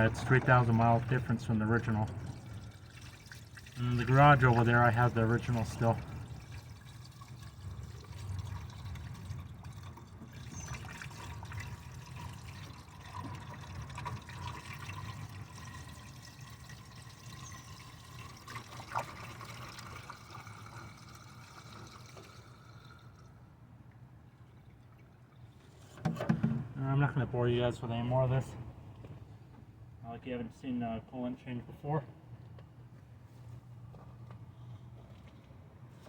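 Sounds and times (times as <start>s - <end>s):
coolant trickling and pouring: 0.0s - 26.8s, 34.6s - 36.0s.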